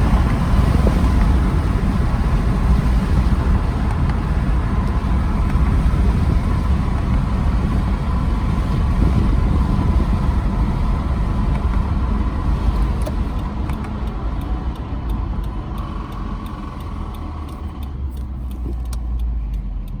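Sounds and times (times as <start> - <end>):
car engine rumble: 0.0 - 20.0
faint engine ticks: 0.0 - 20.0
road noise: 0.0 - 20.0.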